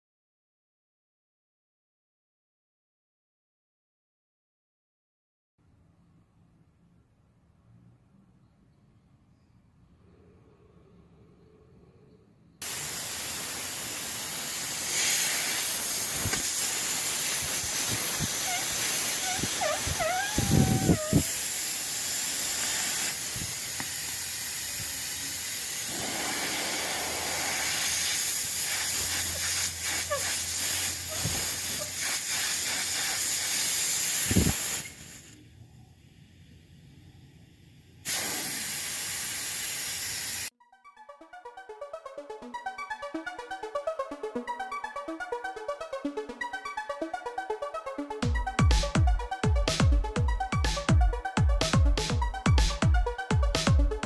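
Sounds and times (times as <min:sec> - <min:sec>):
compressed air hissing: 0:12.6 - 0:35.5, 0:36.1 - 0:40.5
short wavering squeal: 0:18.3 - 0:21.4.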